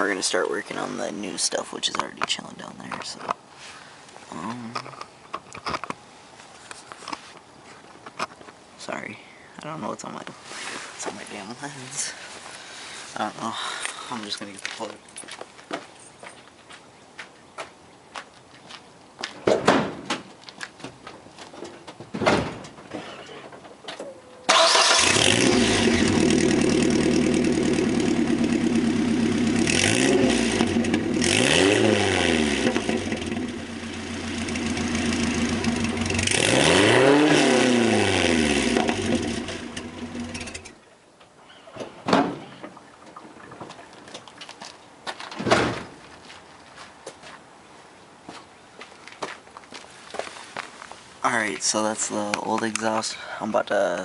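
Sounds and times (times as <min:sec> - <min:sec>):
truck engine starting and revving: 0:24.5 - 0:40.8.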